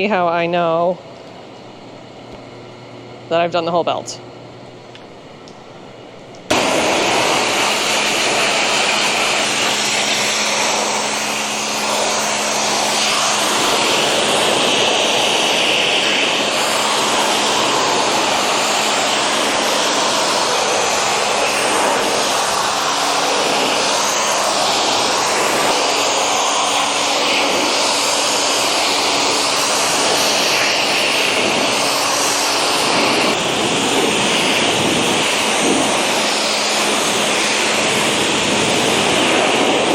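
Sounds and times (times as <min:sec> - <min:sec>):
low steady hum: 0:00.0 - 0:09.4
pressure washer jet hissing: 0:06.5 - 0:39.9.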